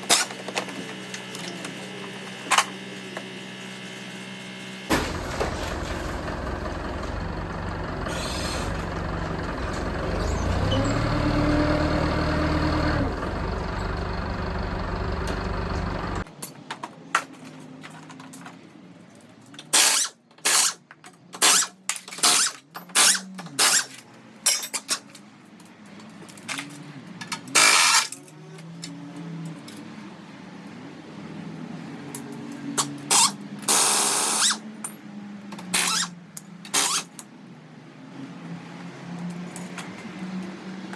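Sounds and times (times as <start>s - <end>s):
machinery running: 0.1s - 16.3s
short loud tool bursts: 33.1s - 34.6s.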